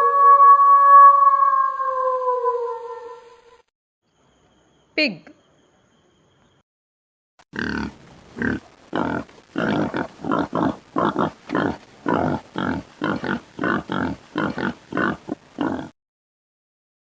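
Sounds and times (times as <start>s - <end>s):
pig grunting and oinking: 7.6s - 15.9s.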